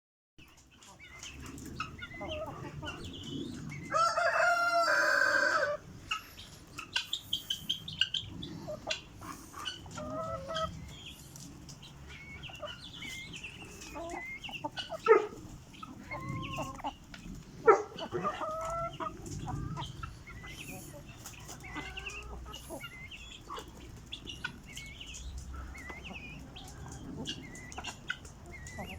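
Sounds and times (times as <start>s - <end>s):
chickens clucking: 0.4s - 28.9s
rooster crowing: 3.9s - 5.8s.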